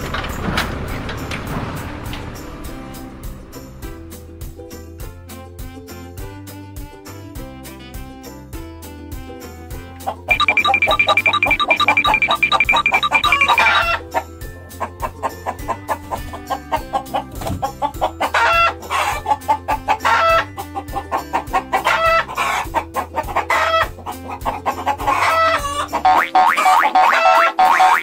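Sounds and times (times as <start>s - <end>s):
background music with steady beat: 10.0s - 14.0s
chicken clucking and crowing: 10.1s - 28.0s.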